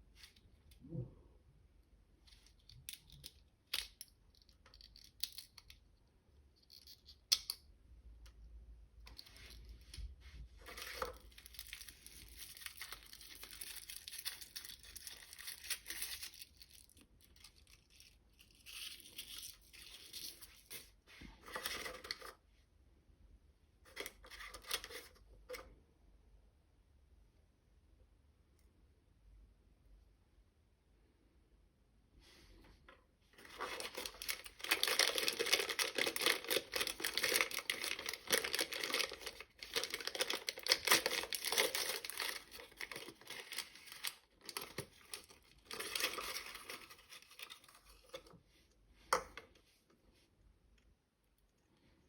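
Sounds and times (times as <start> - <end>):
packaging tearing and rustling: 10.7 - 20.8, 33.4 - 48.2.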